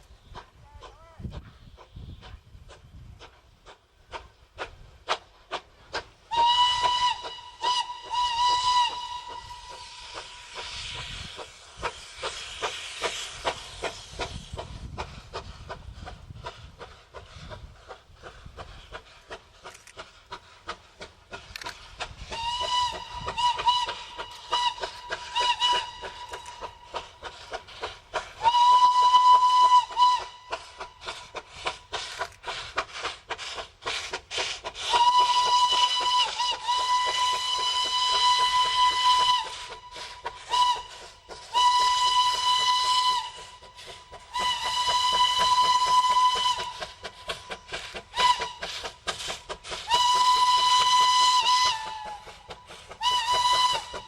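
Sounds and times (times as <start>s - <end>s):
locomotive exhaust chuffing: 2.7s - 54.0s
steam locomotive whistle: 6.2s - 14.3s, 21.6s - 32.3s, 34.7s - 54.0s.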